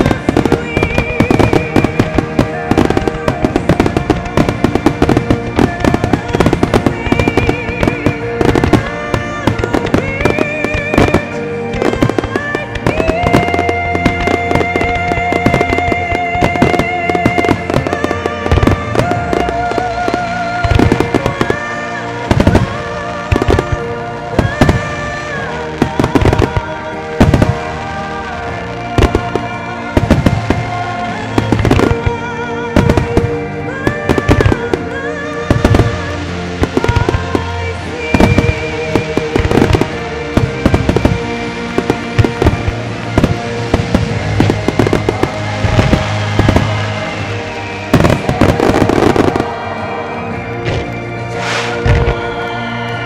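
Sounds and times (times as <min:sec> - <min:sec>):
firework shells bursting: 0:35.5 - 0:53.0.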